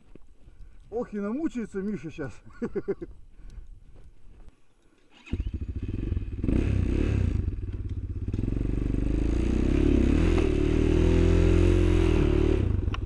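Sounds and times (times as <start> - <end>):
small engine revving: 5.1 - 13.0.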